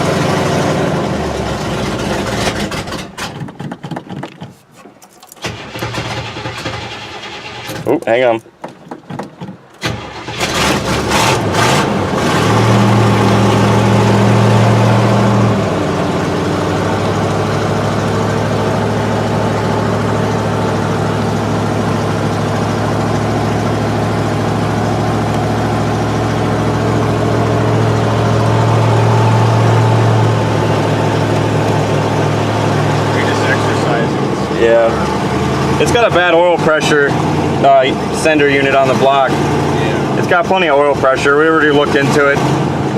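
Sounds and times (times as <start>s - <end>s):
car engine starting and idling: 0.0s - 42.9s.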